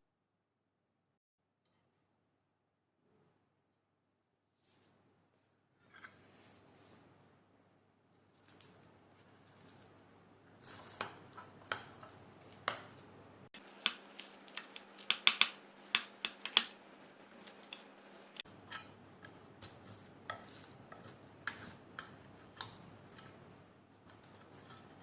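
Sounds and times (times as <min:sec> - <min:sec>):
cutlery clicking against a plate: 0:13.6 - 0:16.8, 0:17.4 - 0:19.0.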